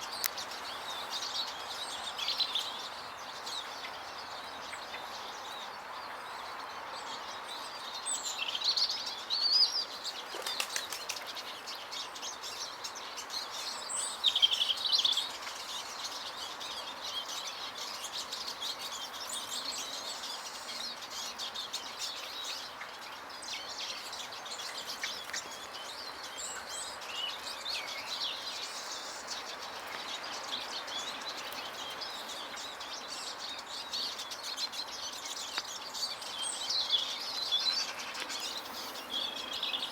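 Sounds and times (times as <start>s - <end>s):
small birds chirping and twittering: 0.0s - 39.9s
steady background hiss: 0.0s - 39.9s
wing flutters: 10.3s - 11.4s.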